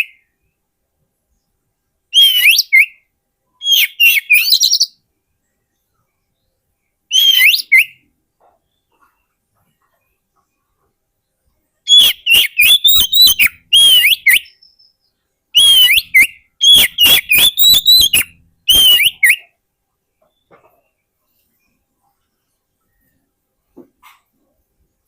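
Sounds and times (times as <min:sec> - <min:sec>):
bird singing whistled notes: 0:02.1 - 0:05.0, 0:05.8 - 0:08.1, 0:11.9 - 0:19.6.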